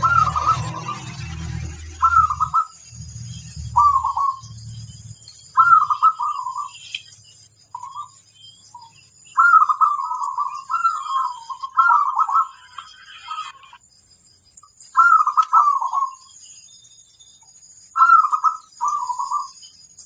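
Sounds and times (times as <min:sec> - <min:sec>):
dove cooing: 0:00.0 - 0:02.7, 0:03.6 - 0:04.5, 0:05.6 - 0:06.8, 0:09.4 - 0:13.5, 0:15.0 - 0:16.3, 0:18.0 - 0:19.5
low rumble: 0:00.0 - 0:05.6.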